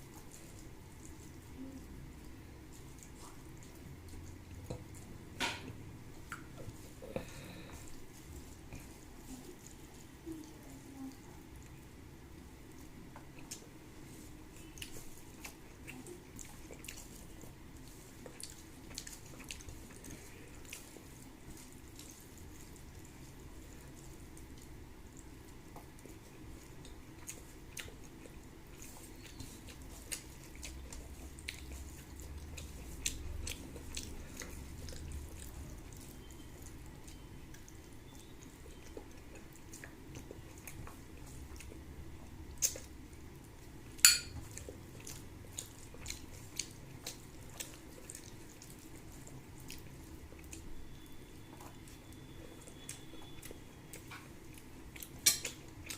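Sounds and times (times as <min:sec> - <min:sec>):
chewing and wet mouth clicks: 0:05.7 - 0:07.2, 0:14.6 - 0:43.1, 0:44.4 - 0:55.9.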